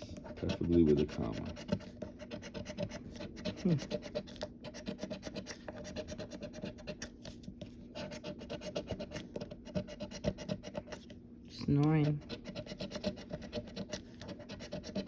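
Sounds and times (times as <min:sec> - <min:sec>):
lottery ticket being scratched: 0:00.3 - 0:07.1.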